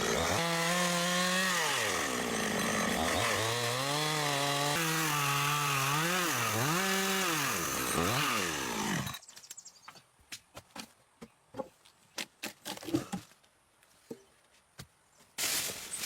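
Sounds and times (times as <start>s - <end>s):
chainsaw cutting timber: 0.0s - 9.2s.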